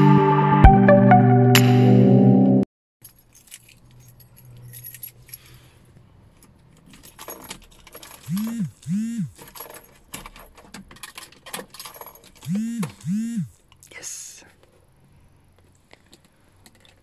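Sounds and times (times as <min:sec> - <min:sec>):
keys jangling and clicking: 0:03.0 - 0:13.1
electric motor whirring: 0:08.3 - 0:09.4, 0:12.4 - 0:13.6.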